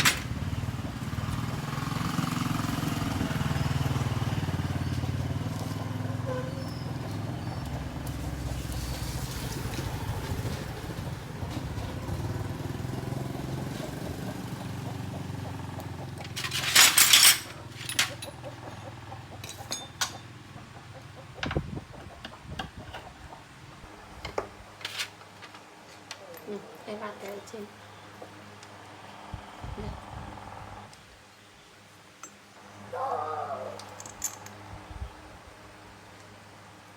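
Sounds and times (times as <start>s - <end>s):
small motorcycle engine running: 0.0s - 16.9s
metallic clinks of tools: 16.3s - 20.3s, 33.8s - 34.6s.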